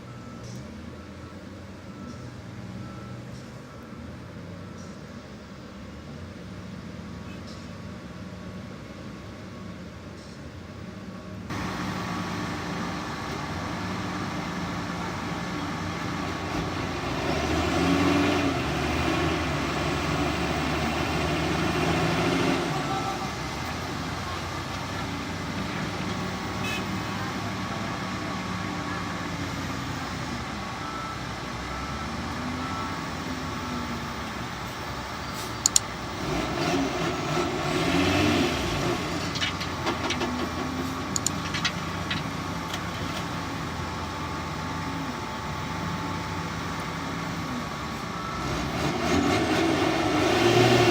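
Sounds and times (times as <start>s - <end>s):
diesel engines revving: 0.0s - 50.9s
sharp clicks: 35.6s - 35.9s, 41.1s - 41.7s.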